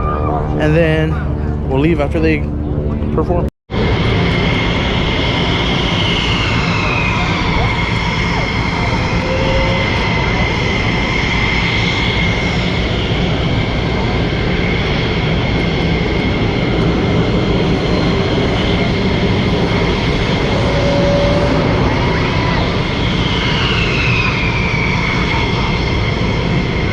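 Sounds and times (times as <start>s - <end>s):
airplane engine drone: 0.0s - 26.9s
faint high whine: 0.0s - 26.9s.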